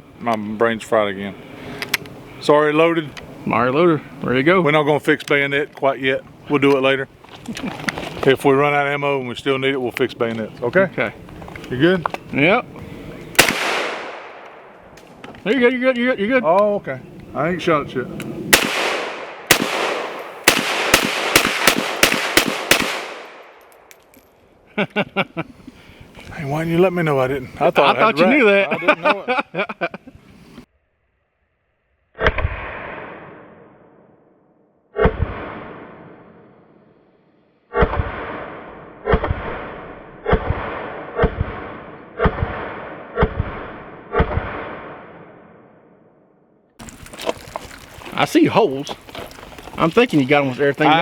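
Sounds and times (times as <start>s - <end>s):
ringing gunshot echo: 13.4s - 14.7s, 18.5s - 23.6s
rifle shots: 13.4s - 14.8s, 18.5s - 23.7s, 37.7s - 45.4s.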